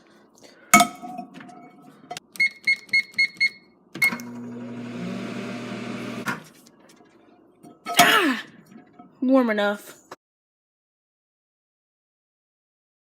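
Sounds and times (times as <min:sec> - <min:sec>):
keypad beeps: 0:02.4 - 0:04.3
microwave click: 0:04.0 - 0:04.8
microwave oven humming: 0:04.0 - 0:06.3.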